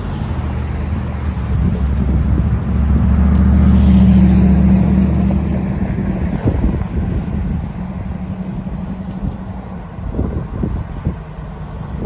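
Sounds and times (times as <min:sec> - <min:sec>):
diesel locomotive engine hum: 0:00.0 - 0:12.0.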